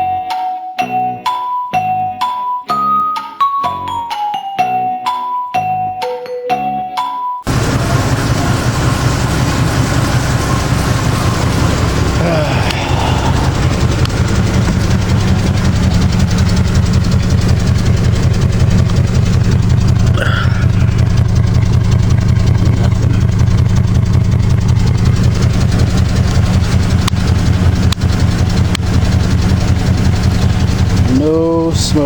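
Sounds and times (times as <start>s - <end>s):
truck engine idling: 7.5s - 32.0s.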